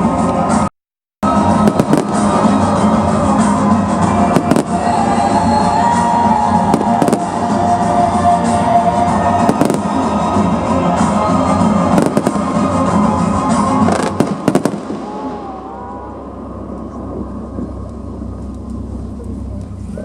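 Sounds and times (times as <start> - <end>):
music: 0.0 - 20.0
fireworks bangs: 1.3 - 16.0
fireworks crackling: 1.3 - 19.9.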